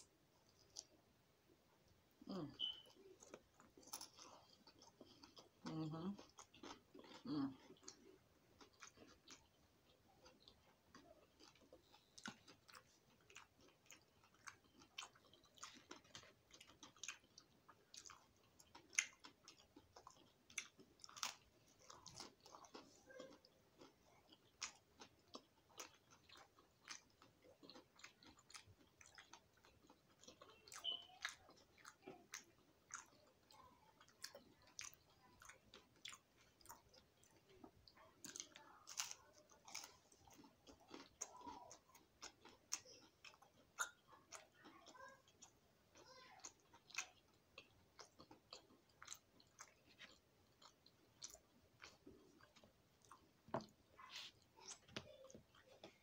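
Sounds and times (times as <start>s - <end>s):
chewing and crunching food: 0.0s - 1.1s, 2.1s - 56.0s.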